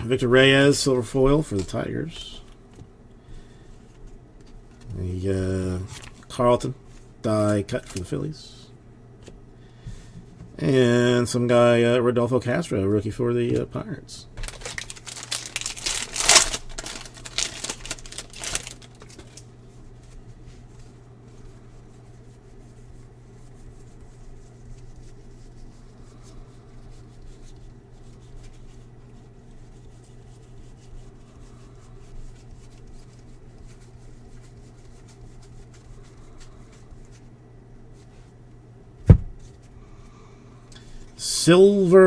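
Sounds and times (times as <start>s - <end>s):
steady low hum: 0.0s - 42.0s
handling cards: 0.7s - 8.2s, 14.4s - 20.3s
foil wrapper crinkling and tearing: 5.8s - 6.3s, 14.4s - 19.5s.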